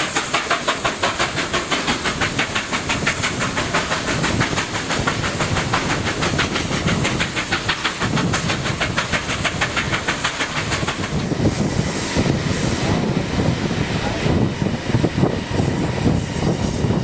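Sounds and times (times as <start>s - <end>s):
steady steam hiss: 0.0s - 17.0s
steam locomotive exhaust beats: 0.0s - 17.0s
train rumble: 0.0s - 17.0s.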